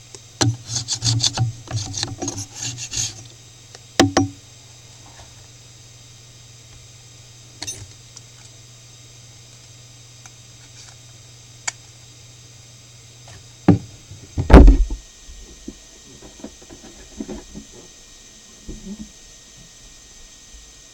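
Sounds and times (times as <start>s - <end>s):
sharp knock: 4.0s - 4.4s, 14.4s - 15.0s
heavy thump: 13.7s - 15.0s.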